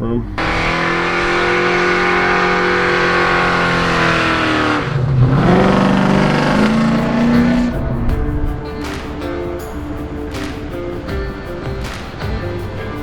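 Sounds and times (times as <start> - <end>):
car engine accelerating: 0.3 - 9.0.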